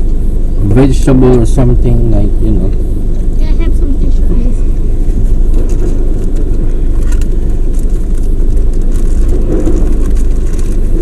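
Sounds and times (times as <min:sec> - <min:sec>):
car cabin rumble: 0:00.0 - 0:11.0
faint clicks and rustles: 0:04.3 - 0:11.0.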